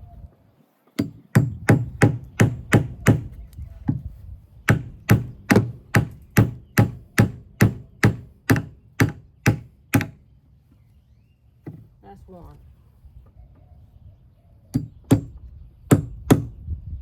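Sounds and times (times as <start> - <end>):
hammer driving nail into wood: 1.0 - 3.3, 4.7 - 10.2.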